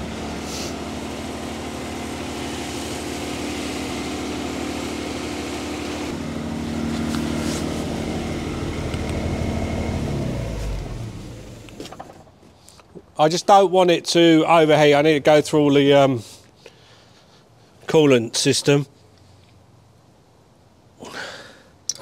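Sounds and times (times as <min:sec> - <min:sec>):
car engine idling: 0:00.0 - 0:12.2
engine running down: 0:00.0 - 0:12.3.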